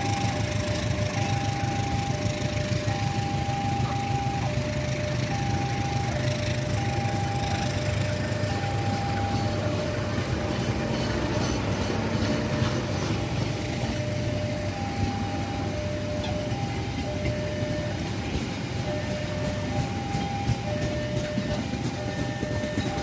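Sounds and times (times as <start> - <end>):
train rumbling past: 0.0 - 23.0
two-tone crossing warning signal: 0.0 - 23.0.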